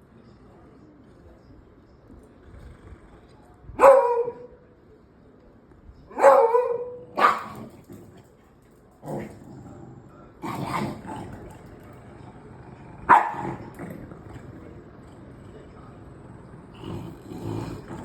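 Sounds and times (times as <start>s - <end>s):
dogs barking: 3.8s - 4.6s, 6.1s - 7.7s, 13.0s - 13.7s.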